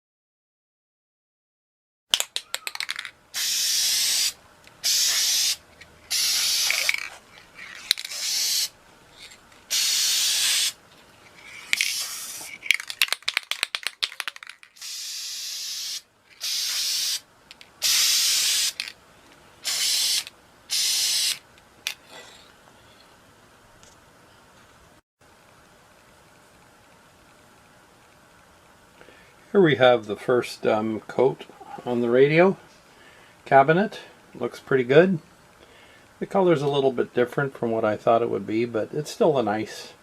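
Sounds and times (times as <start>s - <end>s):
clicks and rattles: 2.2s - 3.2s, 11.3s - 14.8s
spray paint hissing: 2.6s - 8.8s, 9.7s - 10.8s, 11.4s - 19.0s, 19.6s - 21.5s.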